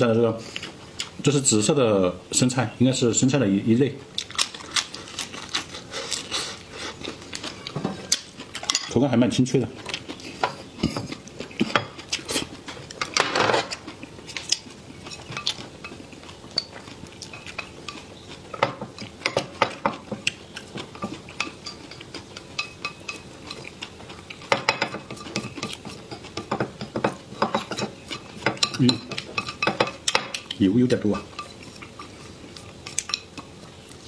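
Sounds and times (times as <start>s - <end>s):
chewing: 4.2s - 8.8s, 9.8s - 34.0s
utensils clicking against plates: 12.9s - 33.6s.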